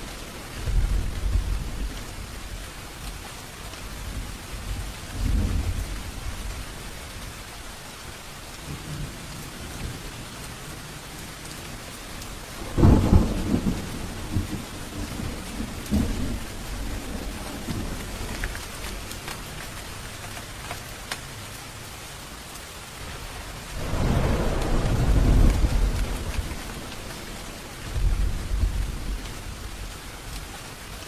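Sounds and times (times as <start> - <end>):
thunder rumbling: 0.0 - 3.0, 3.9 - 7.3, 10.8 - 20.3, 23.0 - 30.8
heavy rain falling: 0.0 - 31.0
sharp thunderclap: 12.6 - 18.5, 23.7 - 30.0.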